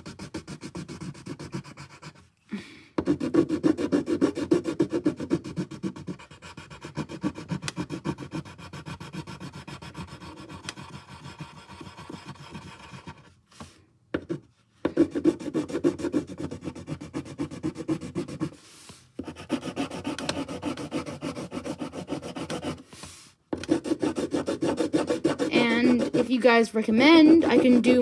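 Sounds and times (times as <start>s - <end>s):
colouring tool rubbing on paper: 0.0s - 2.2s, 3.0s - 13.3s, 14.3s - 28.0s.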